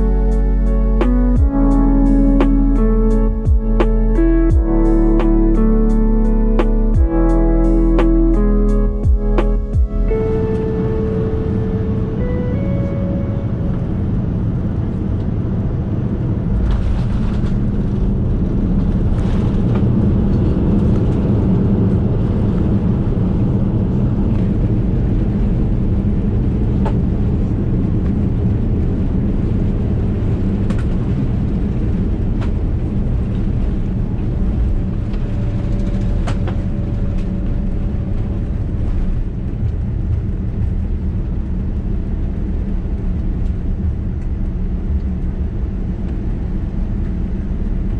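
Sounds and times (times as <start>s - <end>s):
aircraft engines and airflow in cabin: 9.8s - 47.9s.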